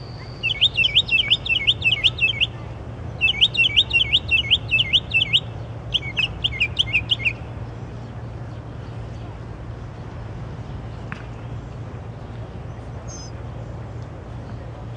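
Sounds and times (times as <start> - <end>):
songbird singing sweeping notes: 0.0 - 8.1, 12.7 - 13.4
steady low hum: 0.0 - 14.9.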